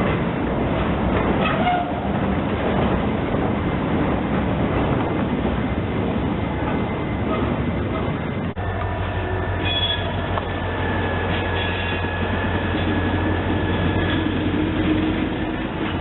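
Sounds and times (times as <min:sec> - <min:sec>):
wheels clickety-clack: 0:00.0 - 0:08.2
train wheels rumbling on rails: 0:00.0 - 0:16.0
faint wheel squeal: 0:09.6 - 0:10.2.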